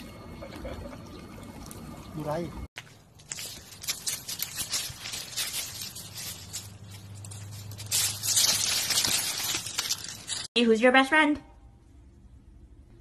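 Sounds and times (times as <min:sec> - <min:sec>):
low steady hum: 0:00.0 - 0:13.0
leaves and mulch rustling: 0:02.8 - 0:10.6.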